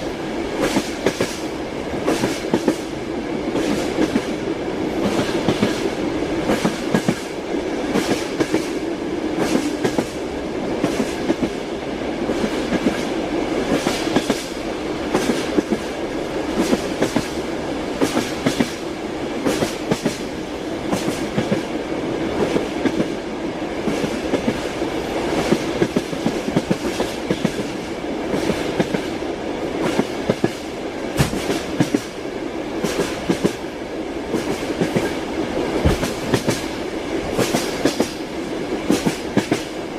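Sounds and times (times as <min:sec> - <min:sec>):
train wheels clacking over rail joints: 0:00.6 - 0:02.9, 0:05.0 - 0:08.8, 0:09.4 - 0:10.2, 0:13.7 - 0:15.9, 0:16.5 - 0:17.4, 0:18.0 - 0:18.8, 0:19.4 - 0:20.3, 0:20.9 - 0:21.7, 0:25.3 - 0:29.1, 0:29.8 - 0:32.2, 0:34.3 - 0:38.2, 0:38.9 - 0:39.8.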